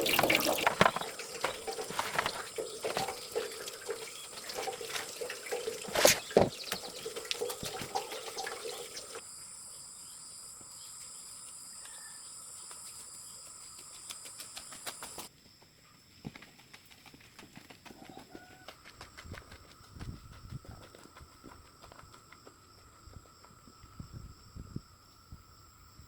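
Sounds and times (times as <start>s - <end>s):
water splashing and dripping: 0.0s - 9.2s.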